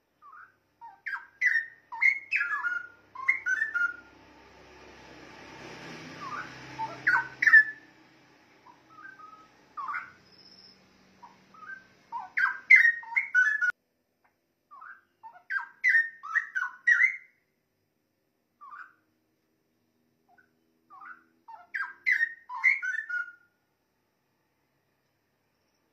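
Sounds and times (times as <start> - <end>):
bird singing whistled notes: 0.1 - 4.1, 6.1 - 7.9, 8.6 - 13.8, 14.7 - 17.4, 18.6 - 19.0, 20.3 - 23.5.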